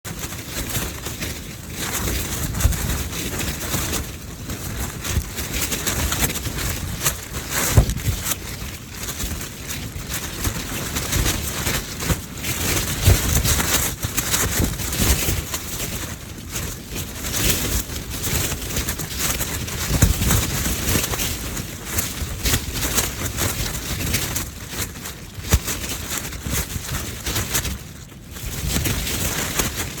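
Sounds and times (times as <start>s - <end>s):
tent fabric flapping and snapping: 0.1s - 30.0s
wind rumble on microphone: 0.1s - 30.0s
high wind gusting: 6.5s - 8.6s.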